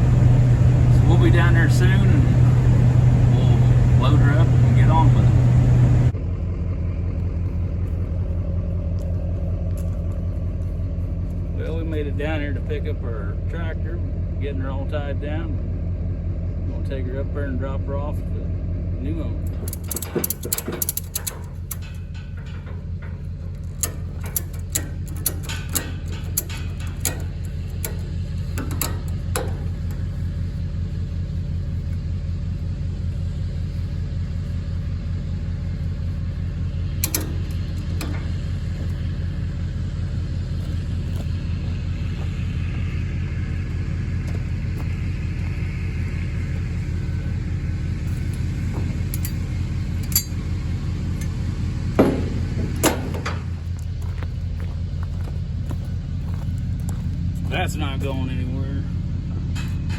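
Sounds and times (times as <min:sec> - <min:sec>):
engine idling: 0:00.0 - 0:59.9
sharp metal clicks and clanks: 0:19.4 - 0:30.4, 0:36.4 - 0:39.6, 0:48.1 - 0:54.0.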